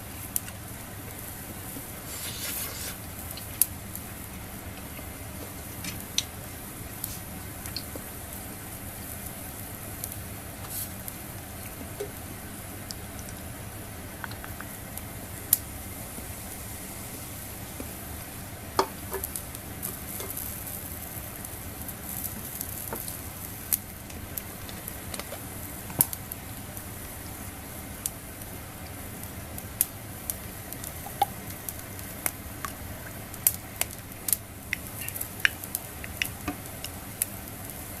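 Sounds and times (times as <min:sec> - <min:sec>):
food sizzling on a grill: 0:00.0 - 0:38.0
sharp clicks and pops: 0:14.2 - 0:14.8, 0:34.7 - 0:37.0.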